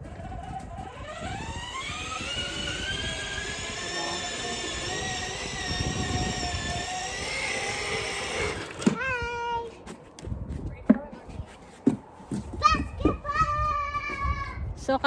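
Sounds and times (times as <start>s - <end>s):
electric scooter motor whining: 0.0s - 9.2s.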